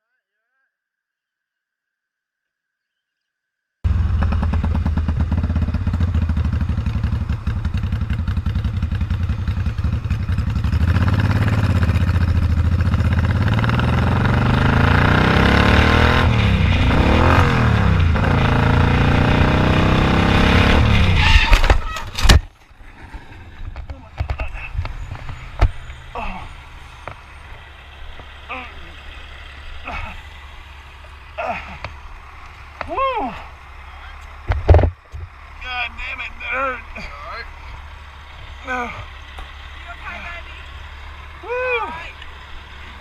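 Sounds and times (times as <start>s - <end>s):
motorcycle engine running: 3.9s - 21.2s, 23.6s - 43.0s
sharp knocks and clatter: 34.2s - 35.4s.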